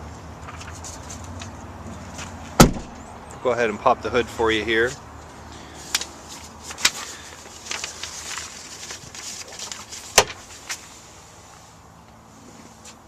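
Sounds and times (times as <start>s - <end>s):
truck hood clicks and knocks: 2.6s - 3.1s.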